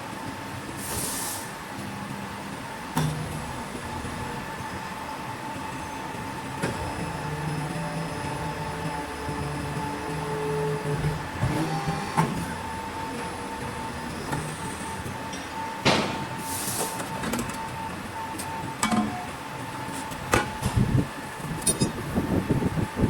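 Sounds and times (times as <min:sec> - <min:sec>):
pipe bender hydraulic hum: 0:03.0 - 0:17.3, 0:20.0 - 0:23.0.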